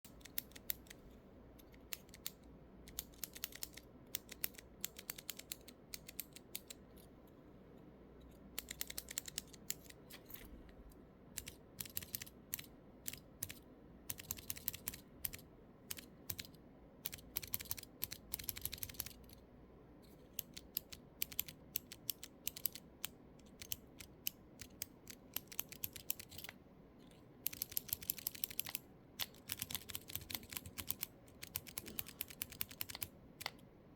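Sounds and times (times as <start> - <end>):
keyboard keys clicking: 1.6 - 6.8, 8.6 - 10.0, 11.4 - 16.5, 17.1 - 19.4, 20.4 - 26.5, 27.5 - 33.7.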